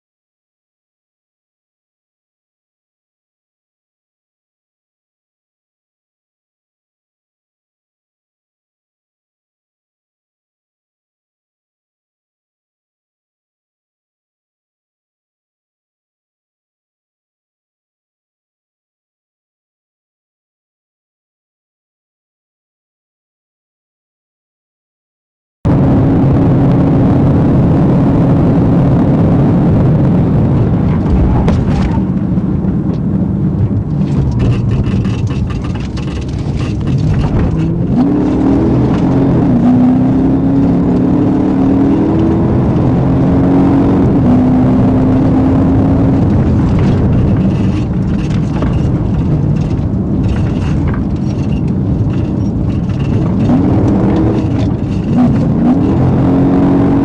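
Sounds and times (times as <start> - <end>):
car engine accelerating and shifting: 25.7 - 57.0
road rumble: 25.7 - 57.0.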